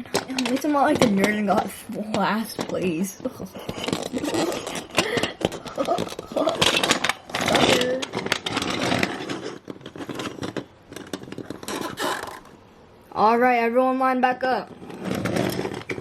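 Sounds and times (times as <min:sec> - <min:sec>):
person making engine noises: 0:00.0 - 0:08.1
plastic toy cars clicking: 0:00.0 - 0:12.6, 0:14.7 - 0:16.0.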